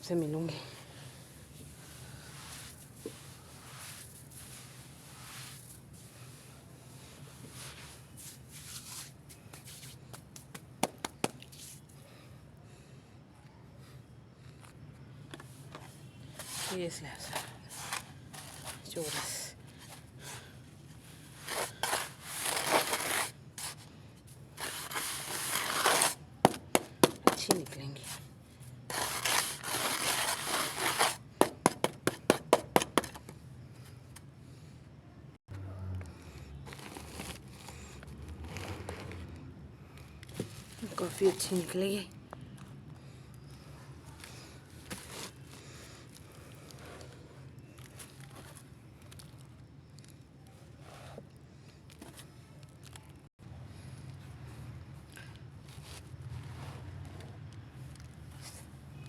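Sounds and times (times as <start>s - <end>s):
wet paste being scraped: 16.4s - 19.2s, 21.3s - 23.9s, 24.6s - 28.2s, 28.9s - 33.1s
hands mixing damp paste: 24.6s - 27.9s.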